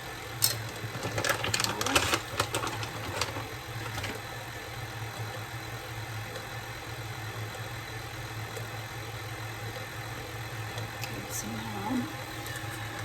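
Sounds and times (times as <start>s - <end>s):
electric mixer motor humming: 0.0s - 13.0s.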